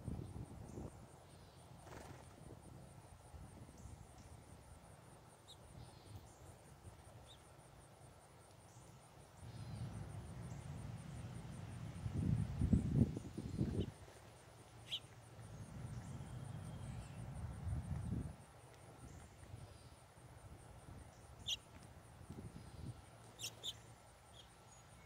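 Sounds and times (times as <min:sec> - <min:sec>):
bird chirps: 0:14.8 - 0:17.3, 0:21.2 - 0:21.6, 0:22.7 - 0:25.0
insect trilling: 0:14.8 - 0:17.7, 0:21.1 - 0:21.7, 0:22.5 - 0:25.0.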